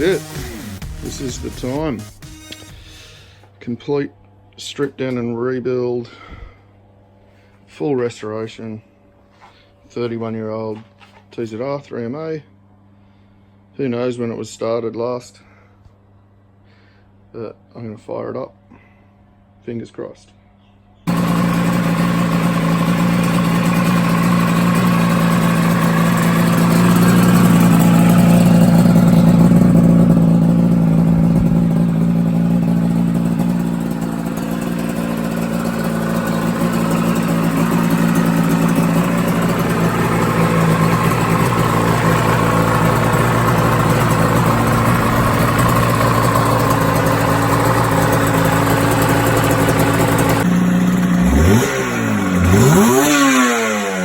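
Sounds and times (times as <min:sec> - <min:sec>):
two-stroke engine idling: 0:00.0 - 0:02.0, 0:21.1 - 0:54.0.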